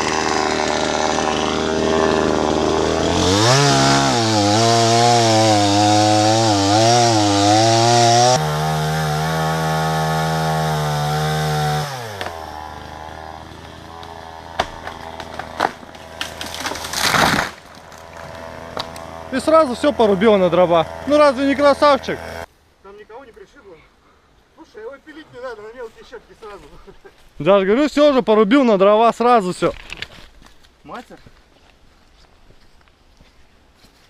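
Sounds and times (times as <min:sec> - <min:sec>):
chainsaw cutting wood: 0:00.0 - 0:22.5
wood cracking: 0:00.0 - 0:22.5, 0:29.6 - 0:30.8.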